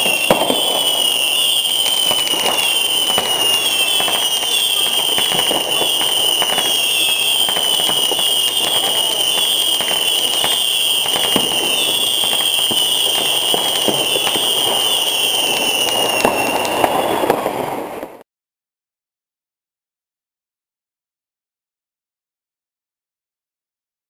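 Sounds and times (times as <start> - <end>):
high warbling whistle: 0.0 - 17.5
firecrackers crackling and popping: 0.0 - 18.2.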